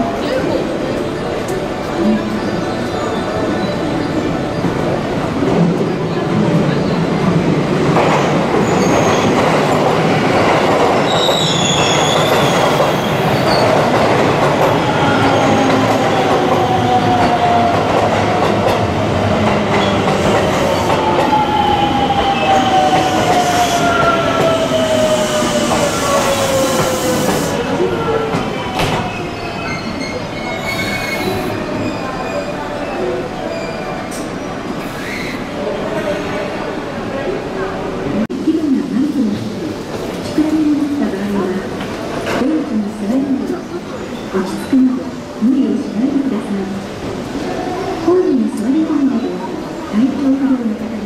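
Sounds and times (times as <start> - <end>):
train wheel squeal: 11.1 - 13.8, 28.8 - 35.5.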